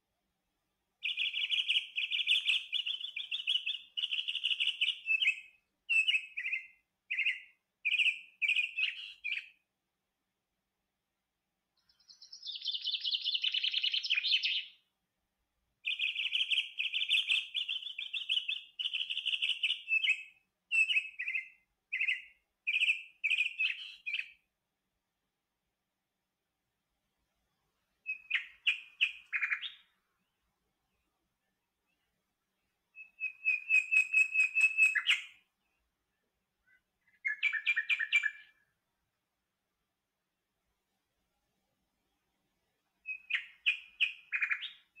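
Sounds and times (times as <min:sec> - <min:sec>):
bird chirping in rapid trills: 0:11.9 - 0:14.8, 0:36.6 - 0:38.6.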